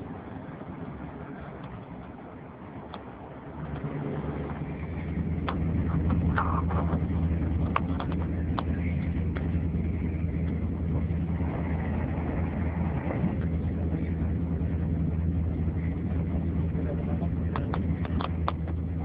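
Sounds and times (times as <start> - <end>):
diesel engine idling: 0.0 - 19.0
light ticks: 5.4 - 9.6.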